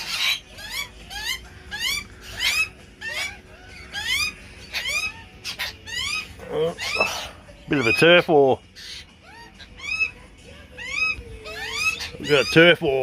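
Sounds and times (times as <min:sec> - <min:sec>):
birds calling harshly: 0:00.0 - 0:13.0.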